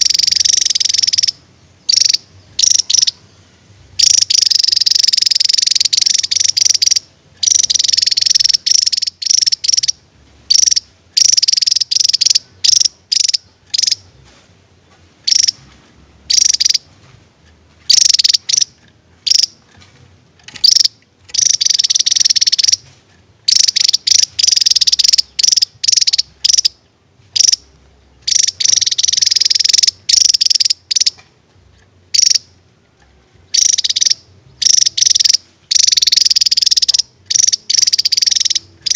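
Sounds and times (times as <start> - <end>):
bird singing high trills: 0.0 - 14.2, 20.5 - 22.8, 23.5 - 31.2, 33.5 - 38.9.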